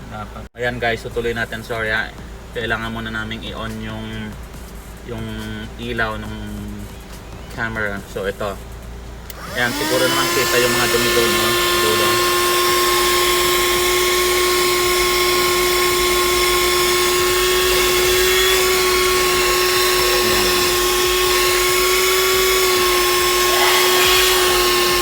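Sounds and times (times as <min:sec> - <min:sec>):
handheld vacuum cleaner whine: 0:09.3 - 0:25.0.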